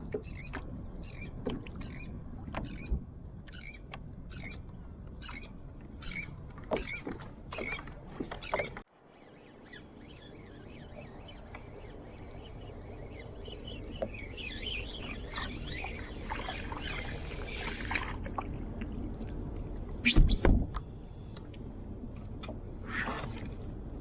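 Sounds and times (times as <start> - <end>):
small birds chirping: 5.2 - 18.0.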